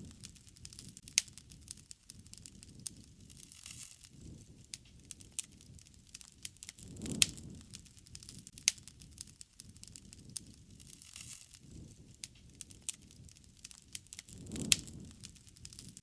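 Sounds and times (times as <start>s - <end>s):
wood fire crackling and popping: 0.0s - 16.0s
soft low rumble: 6.7s - 8.5s.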